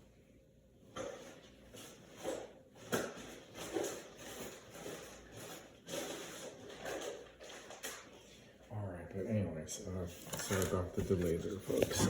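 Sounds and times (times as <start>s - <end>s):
rustling and shuffling: 10.1s - 12.0s.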